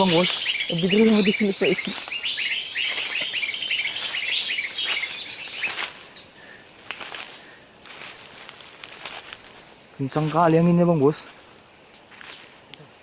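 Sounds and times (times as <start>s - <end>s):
steady high tone: 0.0s - 5.9s
small birds chirping: 0.0s - 13.0s.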